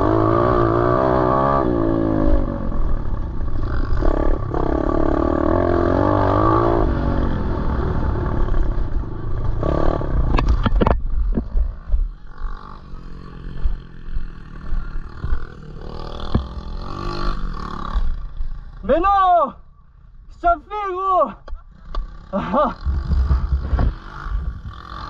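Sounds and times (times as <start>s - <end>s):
motorbike engine revving: 0.0s - 10.7s, 11.7s - 18.7s, 21.9s - 25.0s
bike rattling on rough ground: 10.2s - 17.2s, 22.5s - 25.0s.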